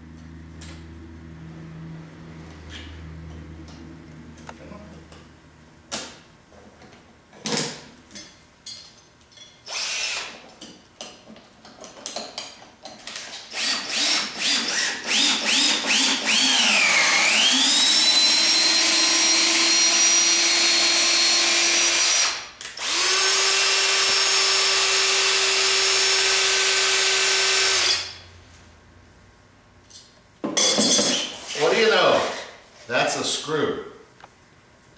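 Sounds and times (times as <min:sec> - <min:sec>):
cordless drill spinning: 0:09.7 - 0:10.4, 0:13.2 - 0:28.2.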